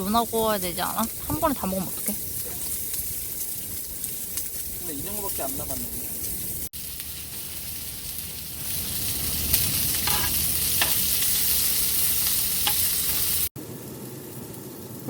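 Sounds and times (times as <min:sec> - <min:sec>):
food sizzling on a grill: 0:00.0 - 0:15.0.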